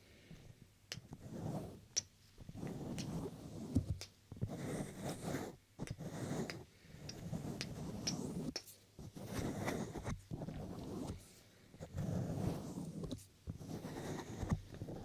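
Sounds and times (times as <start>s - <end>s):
hands rubbing and stroking: 0.9s - 11.3s.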